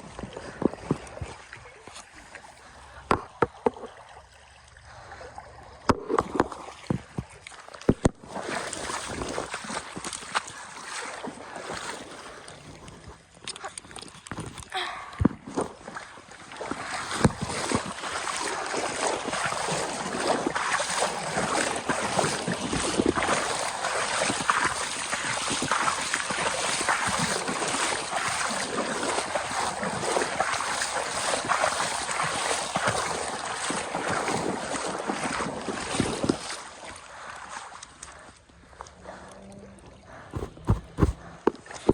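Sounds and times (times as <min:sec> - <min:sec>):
water splashing and churning: 0:00.0 - 0:41.9.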